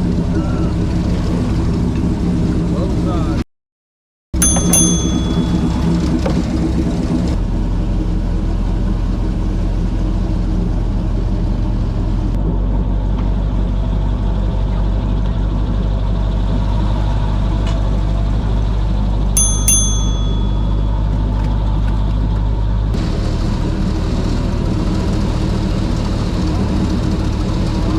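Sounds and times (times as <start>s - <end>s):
airboat engine and propeller drone: 0.0s - 3.4s, 4.4s - 27.9s
bell-like ding: 4.4s - 6.4s, 19.4s - 21.0s.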